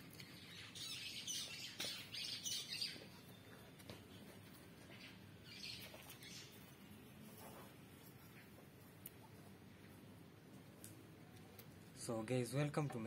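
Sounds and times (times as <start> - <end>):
faint bird chirping: 0.0 - 10.0.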